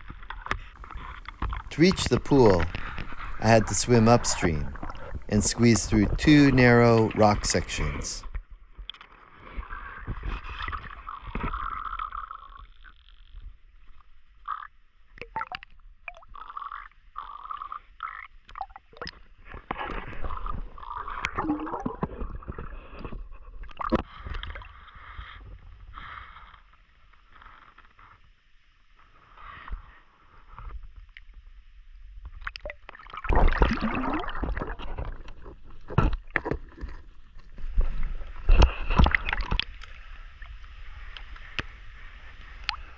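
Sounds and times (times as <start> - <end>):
water splashing and gurgling: 0.8 - 8.0, 33.2 - 37.1.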